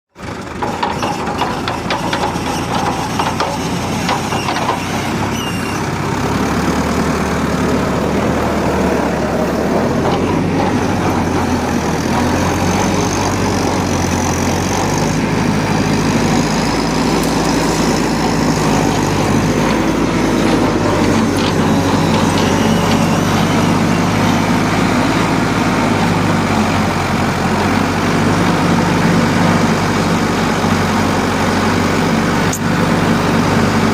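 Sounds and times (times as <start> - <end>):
pile drill engine running: 0.2 - 33.9.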